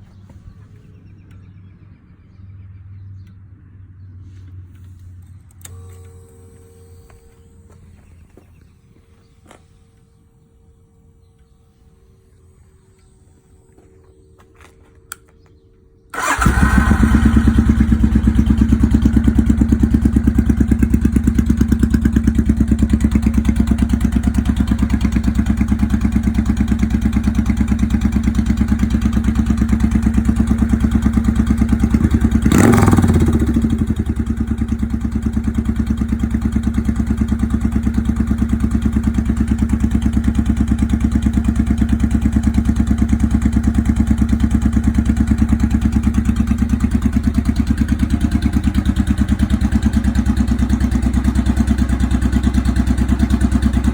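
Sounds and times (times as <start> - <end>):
motorcycle engine idling: 15.1 - 53.9.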